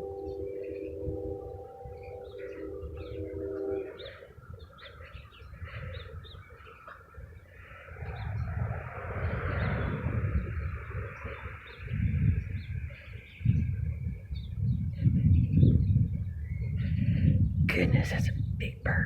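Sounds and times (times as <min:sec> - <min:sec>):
birds chirping: 0:00.0 - 0:19.0
rushing noise with low rumble: 0:07.5 - 0:19.0.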